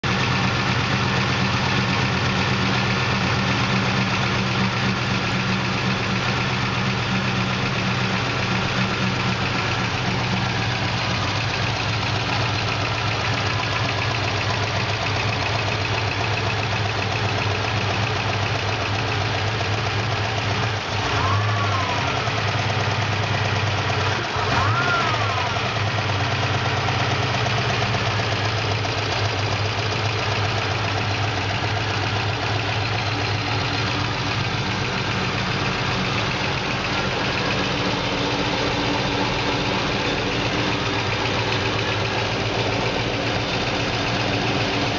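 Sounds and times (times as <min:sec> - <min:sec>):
car engine idling: 0:00.0 - 0:44.9
engine lifter ticking: 0:00.1 - 0:21.4, 0:22.1 - 0:44.9
engine revving: 0:20.8 - 0:27.3.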